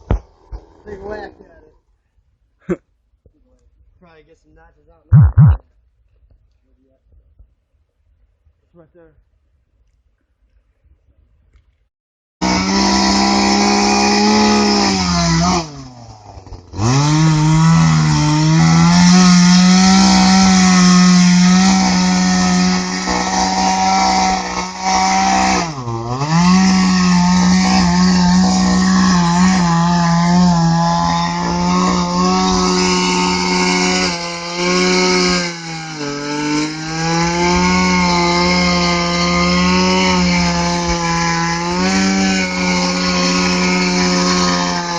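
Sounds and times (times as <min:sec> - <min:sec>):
chainsaw cutting tree trunk: 0:12.4 - 0:44.9.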